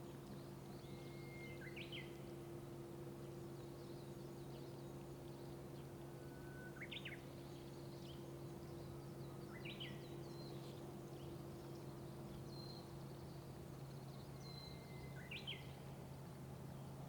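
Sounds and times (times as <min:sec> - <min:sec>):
songbird singing: 0:00.1 - 0:02.2, 0:06.2 - 0:15.8.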